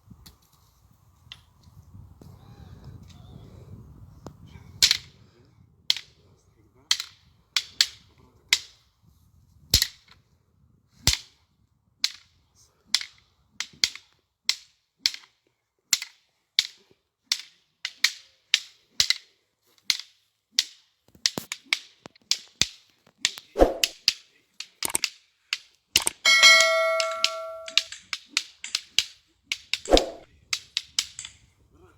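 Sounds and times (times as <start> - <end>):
wooden sticks clacking together: 4.8 - 5.1, 5.9 - 6.2, 6.9 - 8.8, 12.0 - 12.3, 12.9 - 31.5.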